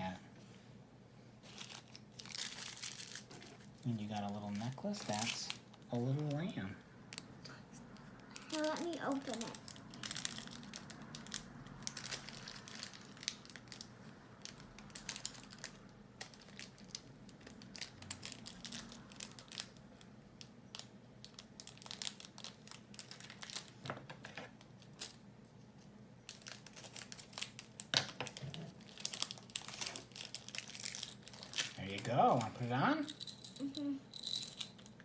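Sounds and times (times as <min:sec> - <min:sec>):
toy packaging crinkling and tearing: 0:01.4 - 0:06.6, 0:08.2 - 0:23.8, 0:26.3 - 0:32.7.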